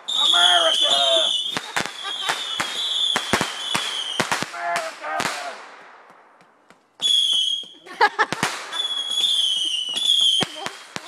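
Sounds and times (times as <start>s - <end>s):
whistling firework: 0.0s - 4.5s, 7.0s - 11.0s
firework cracks: 0.0s - 11.0s.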